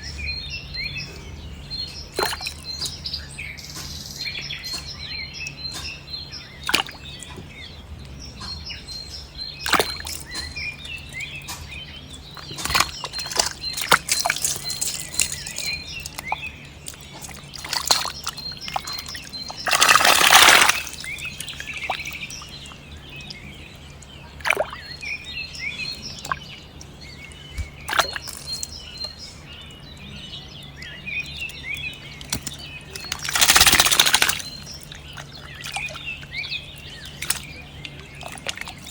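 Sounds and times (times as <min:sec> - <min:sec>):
small birds chirping: 0:00.0 - 0:38.9
water splashing or pouring: 0:02.1 - 0:02.9, 0:12.4 - 0:22.8, 0:32.3 - 0:38.9.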